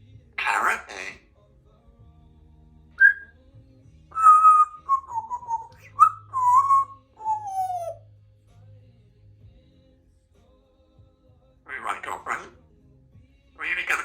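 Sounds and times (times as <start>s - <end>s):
parrot whistling: 0.4s - 1.2s, 3.0s - 3.3s, 4.1s - 8.0s, 11.7s - 12.5s, 13.6s - 14.0s.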